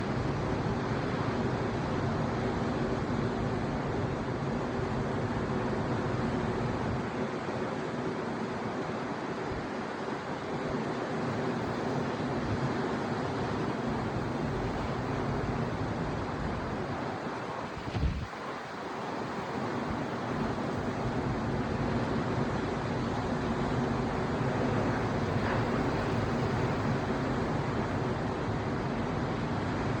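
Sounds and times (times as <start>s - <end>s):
sea waves washing: 9.0s - 30.0s
wind on microphone: 14.6s - 18.6s.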